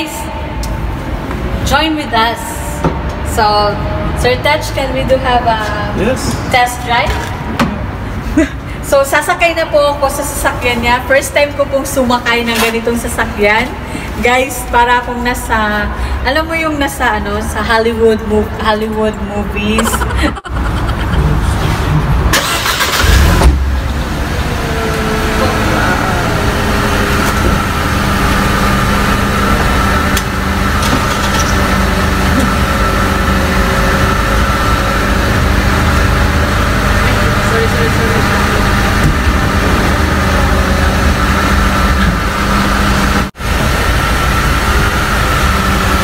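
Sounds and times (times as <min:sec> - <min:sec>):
car engine idling: 0:19.8 - 0:46.0
car engine starting: 0:19.8 - 0:46.0
high whine: 0:23.0 - 0:46.0.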